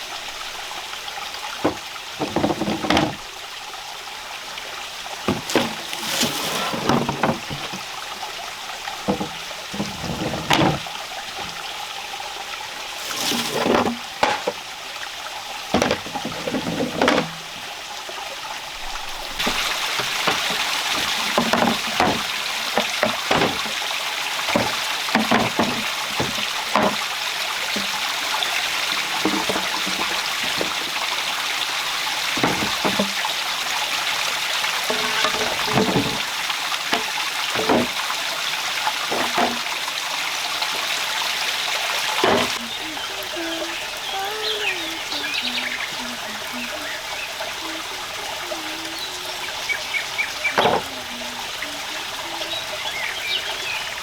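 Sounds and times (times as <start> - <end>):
steady rain hiss: 0.0 - 54.0
knocks and thumps: 1.6 - 3.2, 5.3 - 7.9, 9.0 - 11.6, 13.0 - 14.6, 15.7 - 17.6, 19.4 - 28.1, 28.8 - 31.1, 32.3 - 33.4, 34.9 - 38.1, 39.1 - 39.7, 42.2 - 42.7, 50.6 - 51.0.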